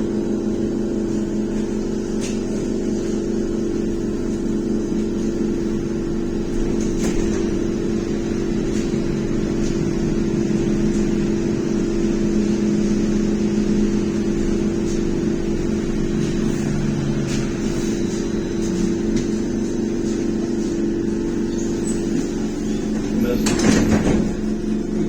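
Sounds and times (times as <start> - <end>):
two-note electric drive hum: 0.0 - 25.0
road noise: 5.9 - 25.0.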